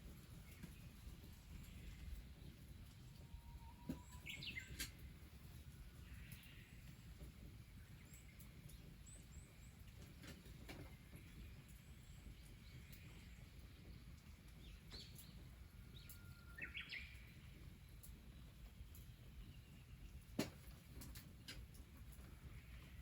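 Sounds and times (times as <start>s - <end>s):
birds chirping: 0.4s - 4.9s.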